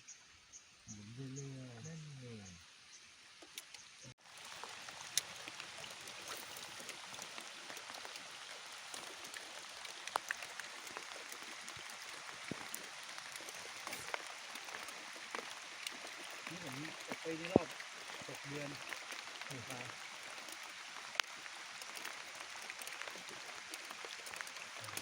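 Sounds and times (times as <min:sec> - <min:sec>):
water hissing: 0:03.2 - 0:25.0
light ticks and clicks: 0:08.9 - 0:25.0.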